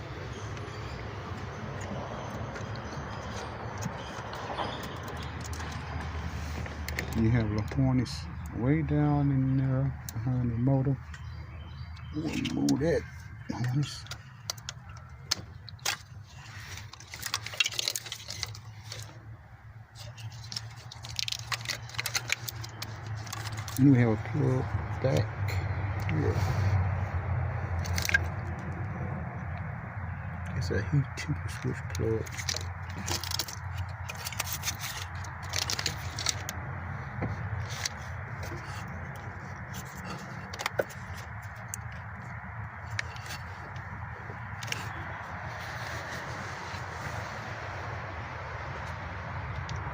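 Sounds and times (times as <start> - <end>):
plastic connectors clicking and rattling: 13.6 - 19.2, 20.0 - 23.9, 27.8 - 28.7, 31.5 - 36.6, 37.6 - 42.2, 42.8 - 43.9, 44.5 - 45.0
plastic connectors clicking: 20.0 - 23.8.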